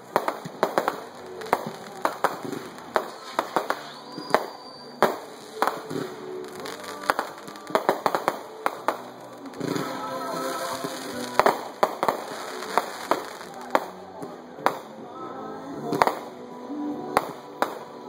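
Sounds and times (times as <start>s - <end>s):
firecrackers popping: 0.0s - 15.0s, 15.9s - 16.3s, 17.2s - 18.0s
firework whistle: 1.8s - 13.4s.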